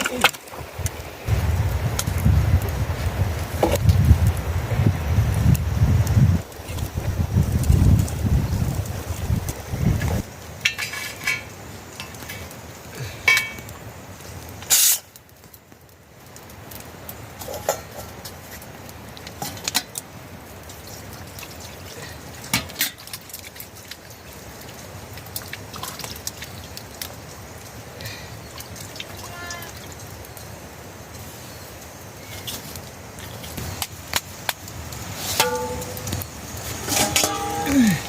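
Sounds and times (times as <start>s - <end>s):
water dripping: 5.4s - 38.0s
dishes and utensils clinking: 35.3s - 36.1s, 36.8s - 38.0s.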